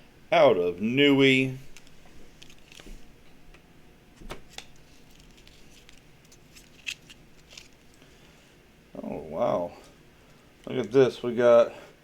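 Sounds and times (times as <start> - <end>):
coins and packaging clicking: 5.2 - 7.8.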